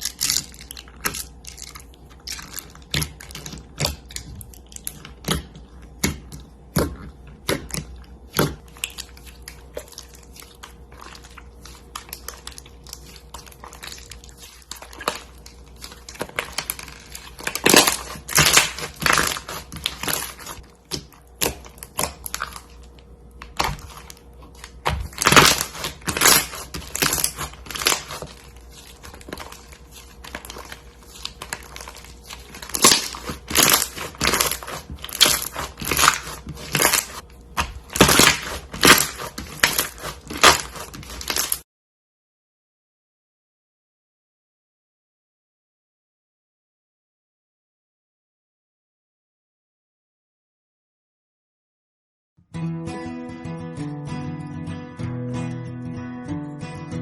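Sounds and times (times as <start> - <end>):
slime squishing with crackling pops: 0.0 - 41.6.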